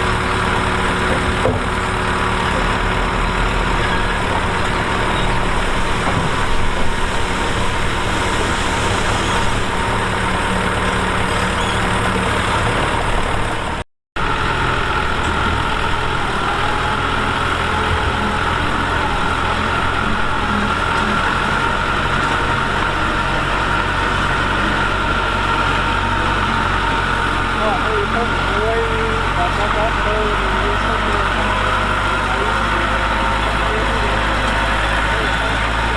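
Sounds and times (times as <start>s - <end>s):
heavy diesel machinery engines: 0.0s - 35.9s.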